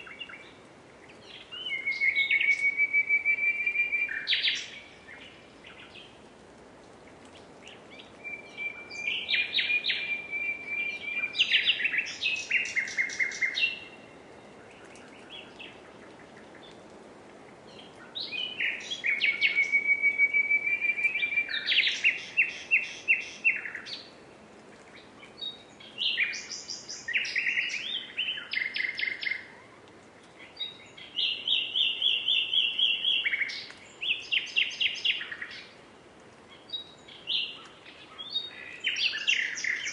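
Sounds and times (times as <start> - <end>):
nightingale singing: 0.0 - 6.2, 7.3 - 16.8, 17.7 - 24.2, 24.8 - 29.6, 30.2 - 35.8, 36.5 - 39.9.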